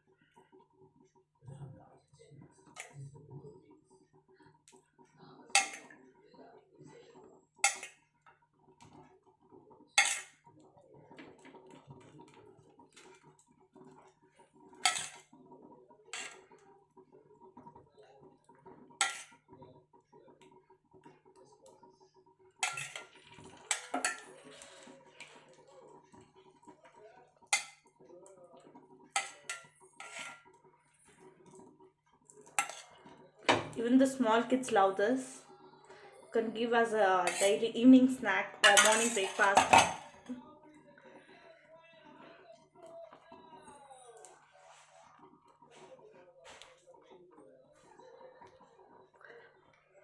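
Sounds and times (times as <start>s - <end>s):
metal spoon clinking on cookware: 5.5s - 5.9s, 7.6s - 8.0s, 10.0s - 10.4s, 14.8s - 15.2s, 16.1s - 16.5s, 19.0s - 19.4s, 22.6s - 24.4s, 27.5s - 27.9s, 29.2s - 30.5s, 32.4s - 34.8s, 37.2s - 37.6s, 38.6s - 40.4s.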